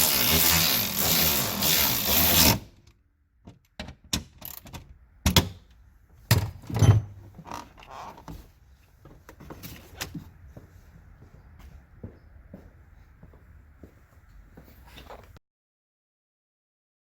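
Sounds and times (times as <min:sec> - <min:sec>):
power tool running: 0:00.0 - 0:02.7
tools and metal parts clunking: 0:06.3 - 0:08.4.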